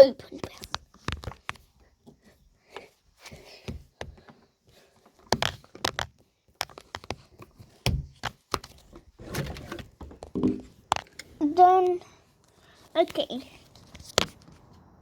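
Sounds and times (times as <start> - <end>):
knocks and clicks of handling: 0.3 - 11.9.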